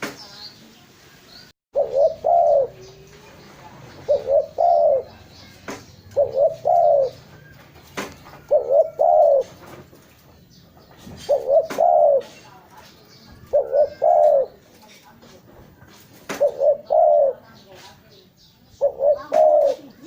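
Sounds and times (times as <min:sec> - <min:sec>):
dove cooing: 0:01.8 - 0:03.2, 0:03.9 - 0:09.8, 0:11.0 - 0:12.4, 0:13.4 - 0:14.8, 0:16.3 - 0:17.6, 0:18.8 - 0:20.0.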